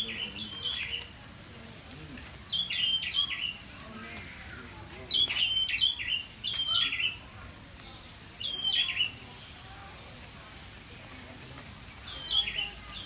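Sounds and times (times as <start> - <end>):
bird calling: 2.5 - 7.2.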